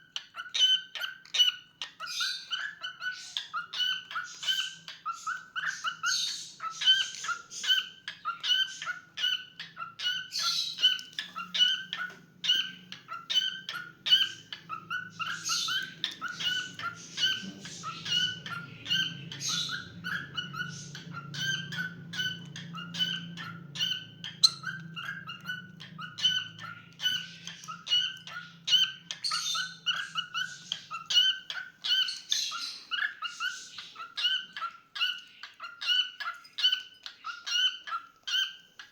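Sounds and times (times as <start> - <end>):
cockatiel chirping: 0.0 - 38.9
faint low hum: 6.6 - 32.3.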